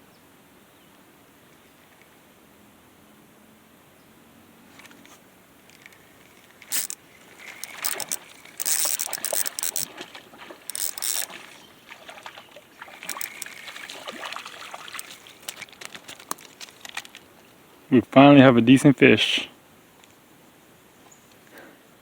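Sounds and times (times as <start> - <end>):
water splashing: 6.3 - 17.2.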